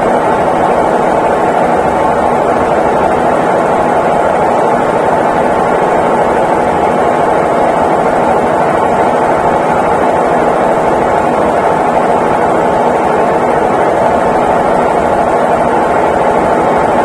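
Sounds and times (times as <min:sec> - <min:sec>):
washing machine whirring: 0:00.0 - 0:17.0.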